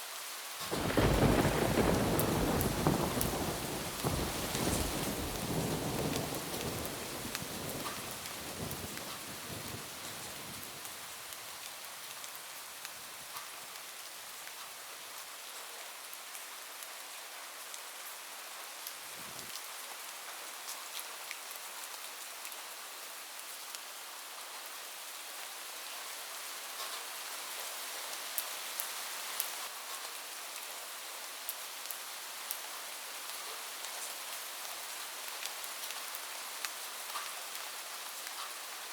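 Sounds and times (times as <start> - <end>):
heavy rain on a roof: 0.0 - 38.9
thunder rumble: 0.7 - 10.8.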